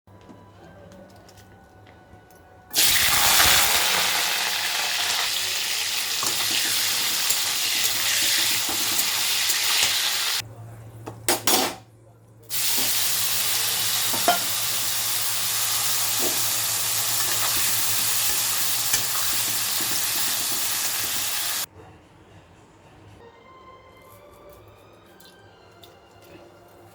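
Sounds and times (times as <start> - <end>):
food sizzling in hot oil: 2.8 - 10.4, 12.5 - 21.7.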